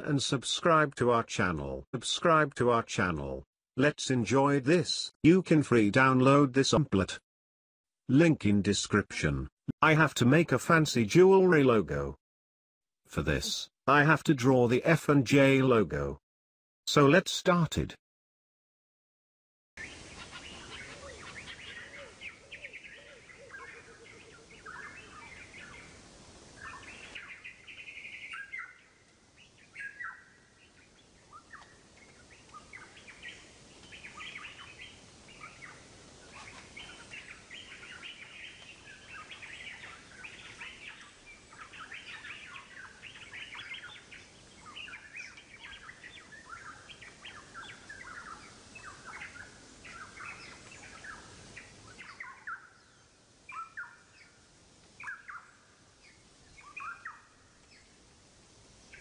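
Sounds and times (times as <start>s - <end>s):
small birds chirping: 19.8s - 59.0s.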